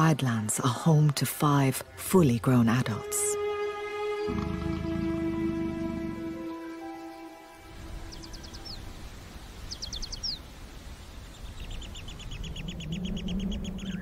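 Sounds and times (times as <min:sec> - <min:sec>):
background music: 0:00.0 - 0:09.3.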